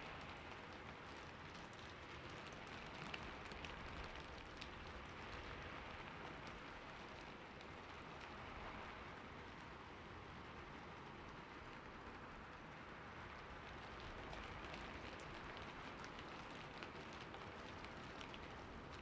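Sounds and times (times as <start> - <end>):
rain falling on a roof: 0.0 - 19.0.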